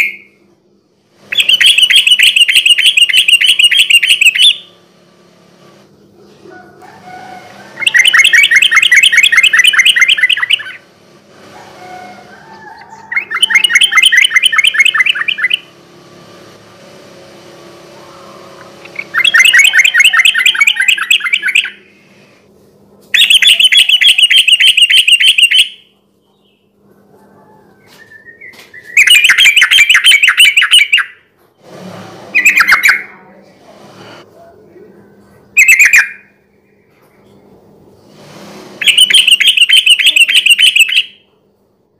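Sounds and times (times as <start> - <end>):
bird singing rattling notes: 1.3 - 6.2, 7.8 - 10.9, 12.9 - 16.5, 17.2 - 21.9, 23.1 - 25.8, 28.8 - 31.2, 38.8 - 41.2.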